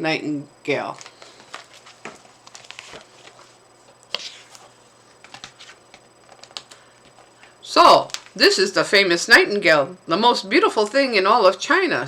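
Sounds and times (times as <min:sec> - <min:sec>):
faint taps and rustles: 0:01.0 - 0:04.5.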